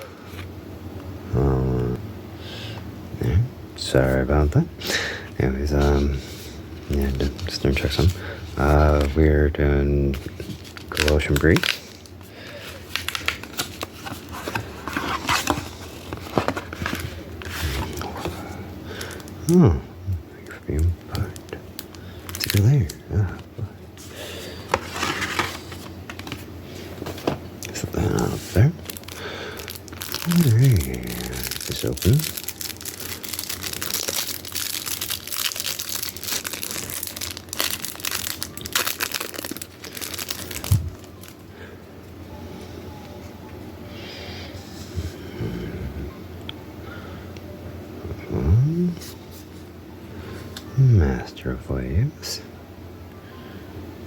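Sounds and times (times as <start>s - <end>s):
packaging crinkling and rustling: 5.6s - 9.2s, 10.0s - 19.5s, 20.4s - 41.4s.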